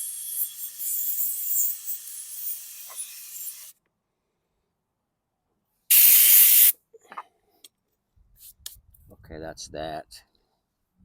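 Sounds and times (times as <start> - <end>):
high hiss: 5.9 - 6.7.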